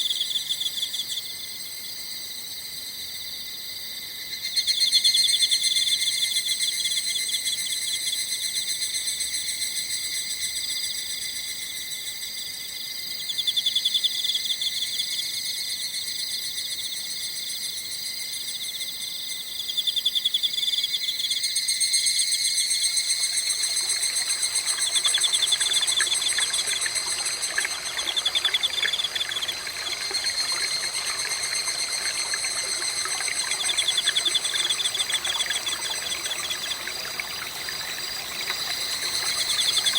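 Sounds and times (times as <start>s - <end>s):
night insects chirring: 0.0s - 39.9s
small stream rushing: 23.1s - 39.9s.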